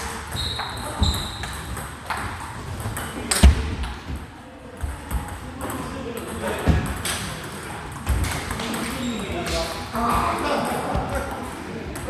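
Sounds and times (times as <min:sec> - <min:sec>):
voices murmuring: 0:04.4 - 0:12.0.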